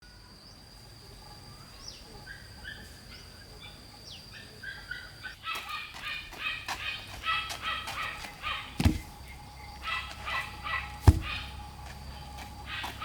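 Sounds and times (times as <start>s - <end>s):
bird chirps: 1.3s - 13.0s
geese or ducks calling: 2.3s - 13.0s
high-pitched insect drone: 7.3s - 13.0s.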